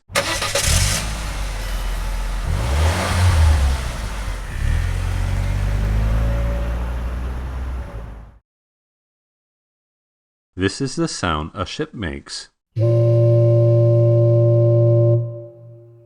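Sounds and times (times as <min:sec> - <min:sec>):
car engine revving: 0:00.1 - 0:08.4.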